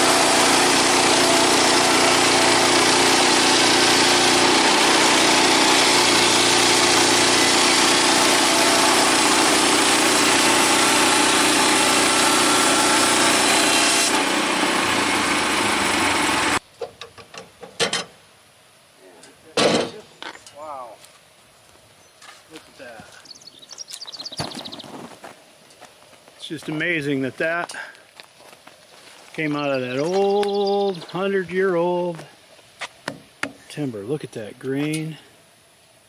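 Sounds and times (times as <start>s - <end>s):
band sawmill cutting timber: 0.0s - 16.6s.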